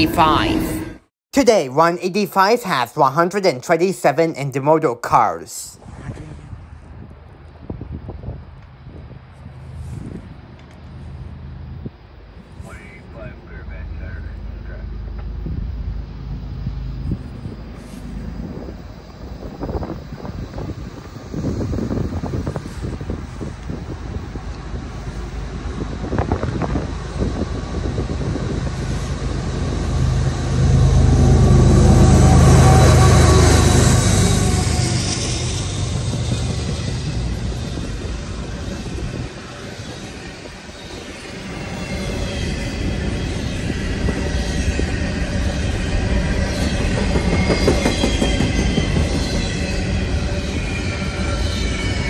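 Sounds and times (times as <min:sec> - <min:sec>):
locomotive engine drone: 0:05.8 - 0:52.0
freight train wheels clattering: 0:27.6 - 0:50.6
high-pitched wheel squeals: 0:30.6 - 0:52.0.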